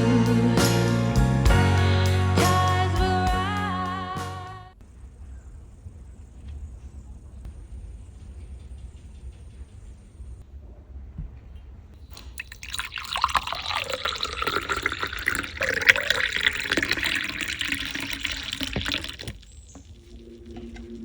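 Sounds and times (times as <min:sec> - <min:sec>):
water running from a tap: 0:12.1 - 0:19.5.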